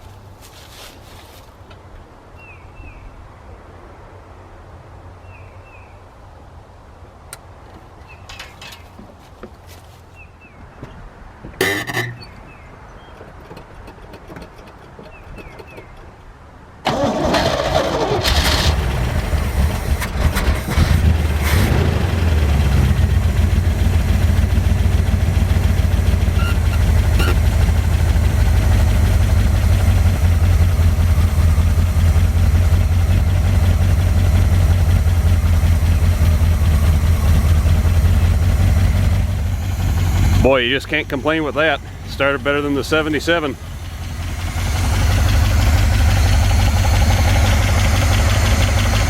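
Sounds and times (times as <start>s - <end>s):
engine cranking and idling: 16.8s - 49.0s.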